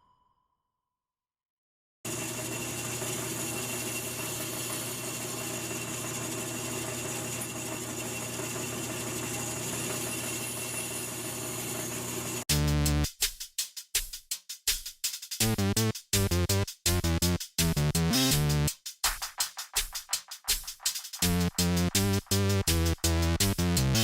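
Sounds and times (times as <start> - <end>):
power tool motor humming: 2.1 - 12.4.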